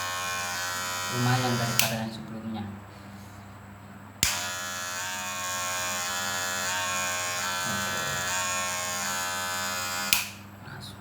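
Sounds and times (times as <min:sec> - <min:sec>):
hair clipper buzzing: 0:00.0 - 0:02.1, 0:04.2 - 0:10.5
hair clipper switch click: 0:00.5 - 0:02.0, 0:04.2 - 0:10.4.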